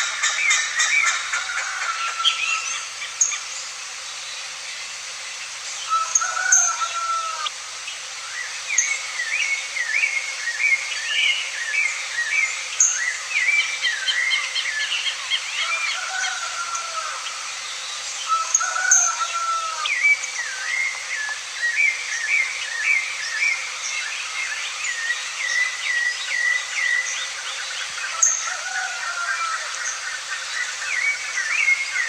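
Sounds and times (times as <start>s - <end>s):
birds chirping: 0.0s - 4.2s
steady background hiss: 0.0s - 32.0s.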